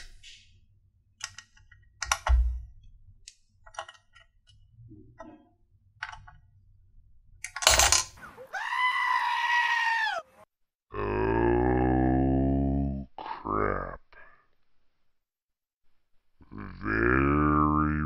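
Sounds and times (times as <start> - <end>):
goat screaming: 8.4 - 10.4.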